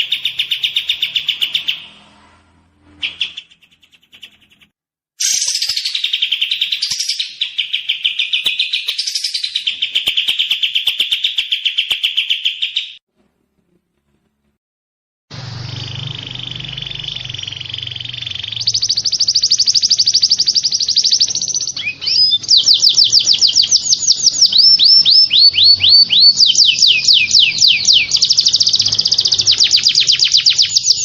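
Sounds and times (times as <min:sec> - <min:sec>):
songbird trill: 0:15.5 - 0:31.0.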